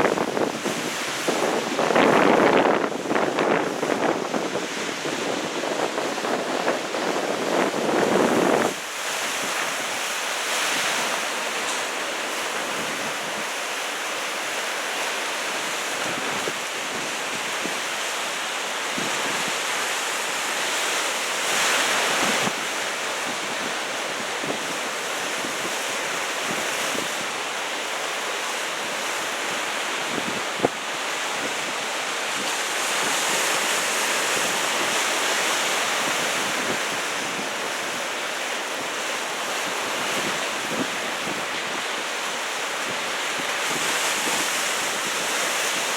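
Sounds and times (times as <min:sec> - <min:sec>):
wind rumbling on microphone: 0:00.0 - 0:13.6, 0:28.8 - 0:45.9
ocean waves breaking: 0:00.0 - 0:45.9.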